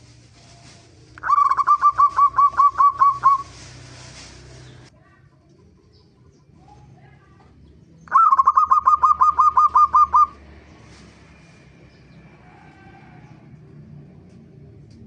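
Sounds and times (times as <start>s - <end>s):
dove calling: 0.1s - 4.9s, 7.9s - 10.5s.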